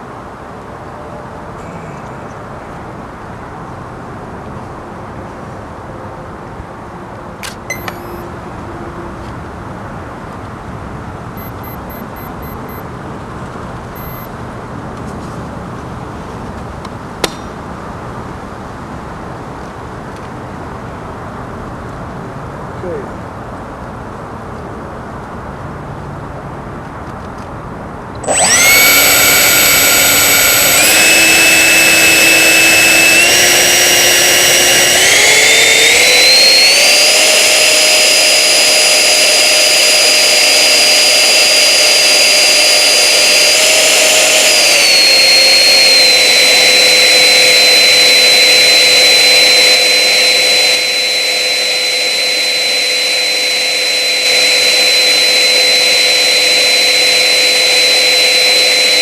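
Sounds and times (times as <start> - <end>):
jet turbine whine: 7.5 - 8.9, 11.4 - 12.8, 14.0 - 14.3, 28.2 - 59.0.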